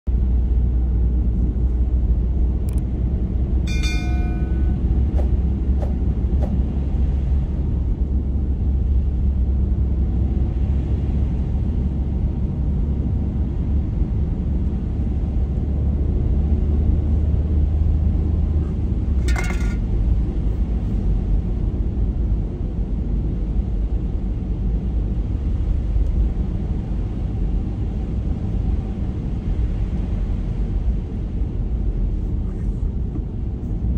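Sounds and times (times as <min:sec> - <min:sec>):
car driving on snowy road: 0:00.1 - 0:33.9
short pitched beep: 0:03.7 - 0:04.8.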